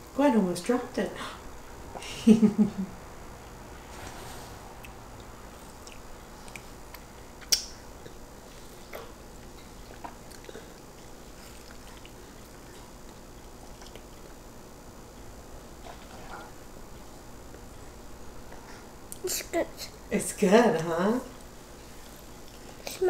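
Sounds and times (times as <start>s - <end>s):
wet chewing sounds: 4.8s - 14.6s, 21.3s - 23.0s.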